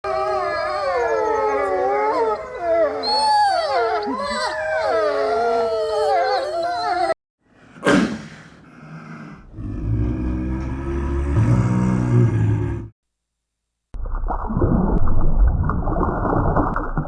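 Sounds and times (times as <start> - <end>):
dogs howling: 0.1 - 7.2.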